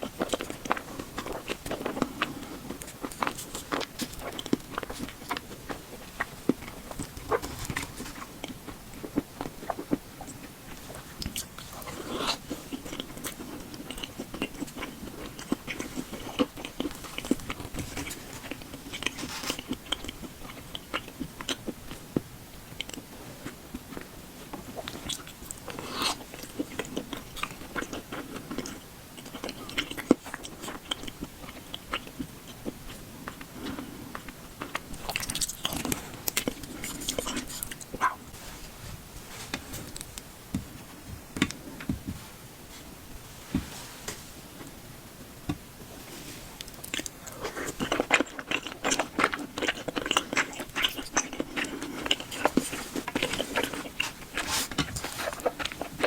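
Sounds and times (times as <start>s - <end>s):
chewing with wet mouth clicks: 0.0s - 38.2s, 46.6s - 56.0s.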